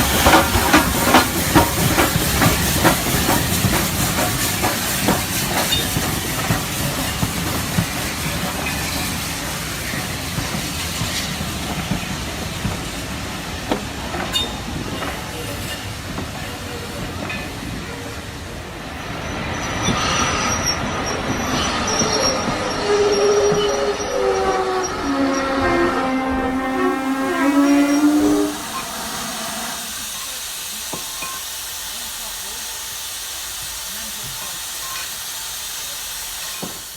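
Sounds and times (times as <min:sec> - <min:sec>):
steam train hiss and rumble: 0:00.0 - 0:36.9
high wheel squeals: 0:19.2 - 0:30.4.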